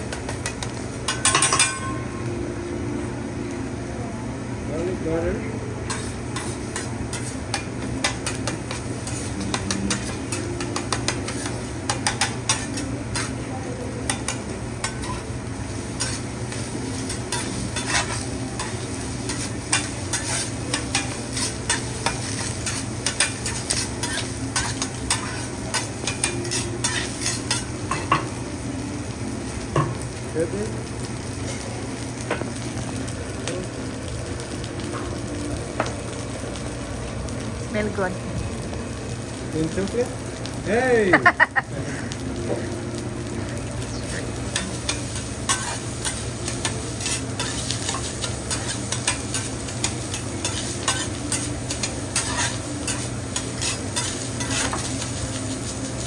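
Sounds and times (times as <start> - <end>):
food sizzling on a griddle: 0.0 - 56.0
metal spatulas clicking and scraping: 19.3 - 27.6, 44.6 - 54.8.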